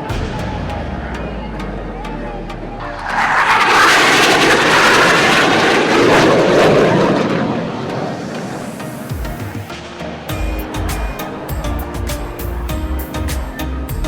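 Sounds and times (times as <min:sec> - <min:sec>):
jet passing overhead: 0:00.0 - 0:10.3.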